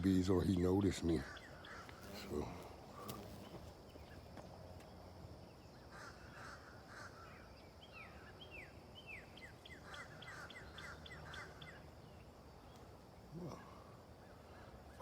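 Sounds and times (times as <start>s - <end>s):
faint birdsong: 0.0s - 15.0s.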